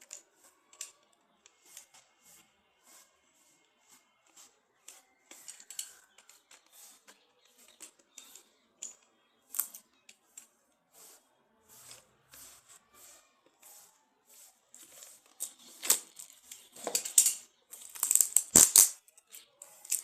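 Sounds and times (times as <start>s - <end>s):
packaging rustling and scraping: 11.8s - 20.0s.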